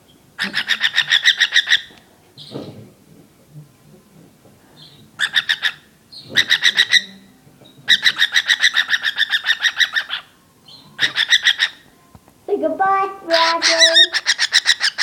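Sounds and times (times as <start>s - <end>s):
cockatiel rapid chirping call: 5.2s - 5.8s, 7.9s - 10.3s, 11.0s - 11.8s, 13.6s - 15.0s.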